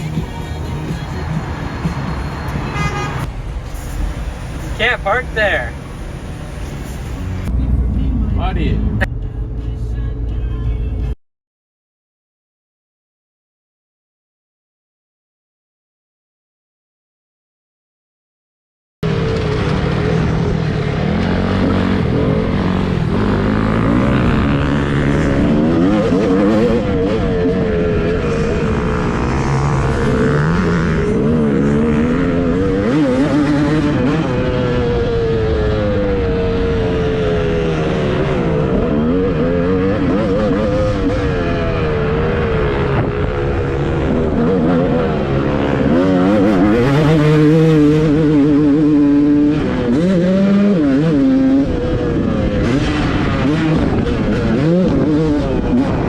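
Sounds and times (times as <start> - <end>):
dirt bike engines revving: 4.3 - 9.1, 19.1 - 56.0.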